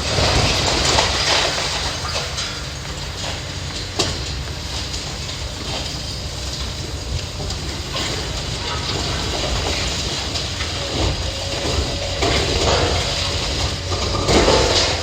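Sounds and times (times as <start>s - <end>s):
diesel machinery rumble: 0.0s - 15.0s.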